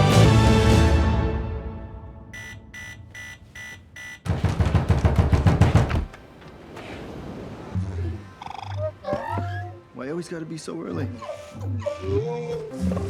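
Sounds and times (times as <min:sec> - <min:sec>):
alarm clock beeping: 0:02.4 - 0:04.3.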